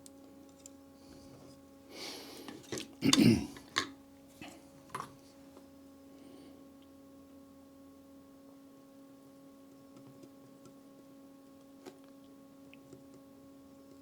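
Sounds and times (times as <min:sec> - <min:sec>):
faint electrical hum: 0:00.0 - 0:14.0
clicks of handling small parts: 0:00.4 - 0:00.8, 0:02.4 - 0:02.9, 0:03.6 - 0:03.9.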